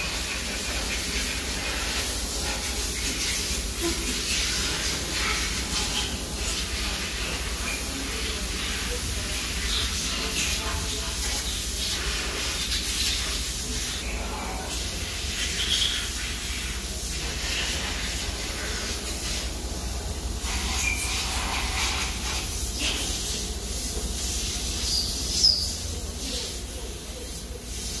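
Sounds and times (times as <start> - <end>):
short high squeak: 20.7 - 21.3.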